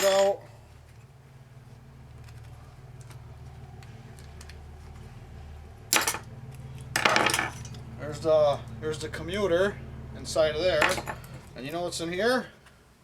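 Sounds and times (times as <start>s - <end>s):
faint low hum: 0.0s - 13.0s
motor parts clattering apart: 5.9s - 7.8s, 10.8s - 11.5s.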